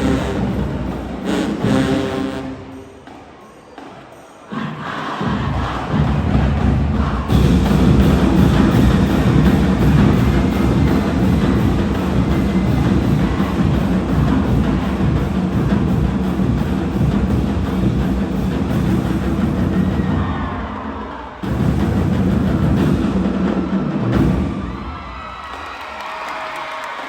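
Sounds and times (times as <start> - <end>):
marching band playing: 0.0 - 25.2
drums and percussion: 0.0 - 27.0.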